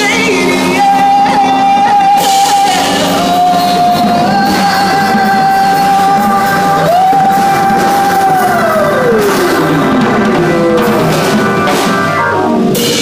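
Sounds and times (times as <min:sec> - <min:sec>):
woman singing a long high note: 0:00.0 - 0:09.4
live band playing: 0:00.0 - 0:13.0.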